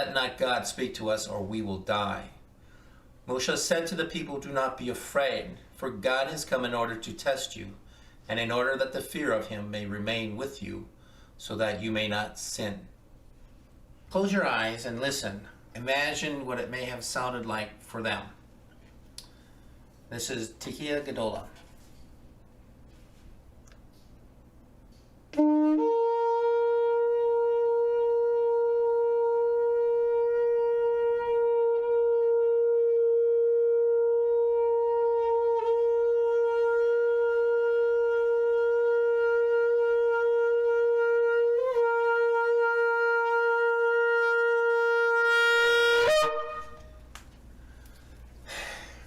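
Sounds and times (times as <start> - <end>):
shofar long blast: 25.3 - 47.1.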